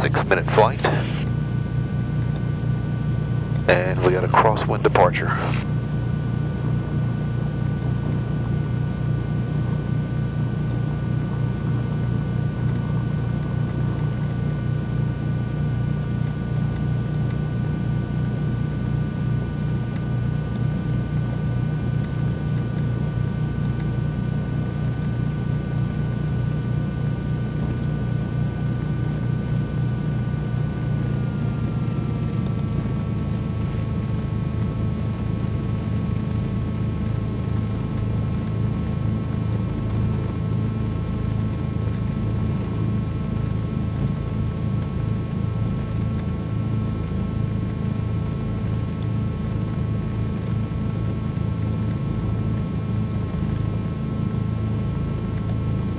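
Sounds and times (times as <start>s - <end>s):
twin piston engines droning: 0.0s - 1.2s.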